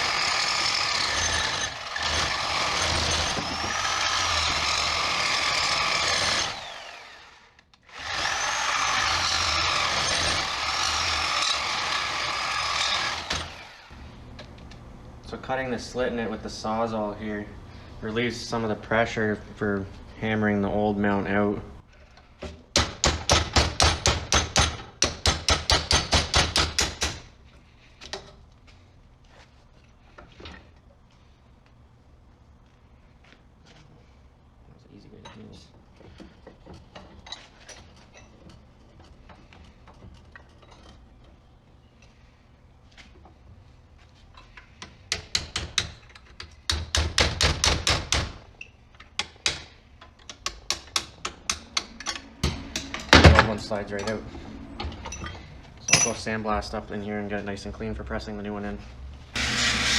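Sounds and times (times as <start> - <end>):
hammer striking metal: 50.7 - 53.6, 55.9 - 56.2.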